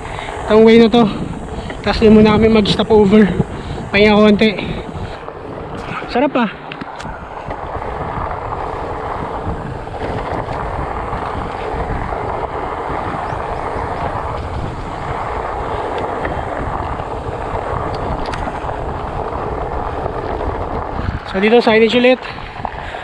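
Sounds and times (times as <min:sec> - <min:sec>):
low rumble: 0:00.0 - 0:23.0
wind on microphone: 0:00.0 - 0:23.0.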